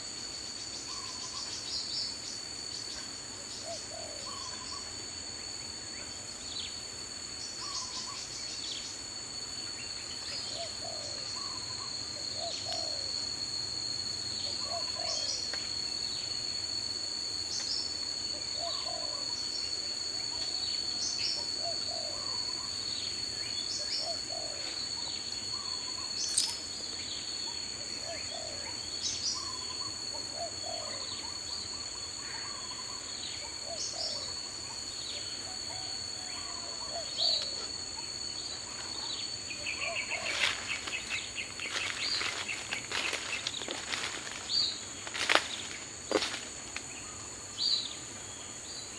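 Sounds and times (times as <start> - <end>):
high insect drone: 0.0 - 48.9.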